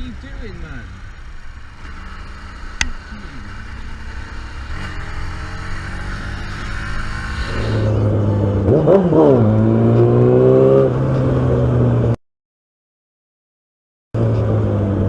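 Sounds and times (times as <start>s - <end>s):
vehicle engine revving: 0.7s - 12.2s.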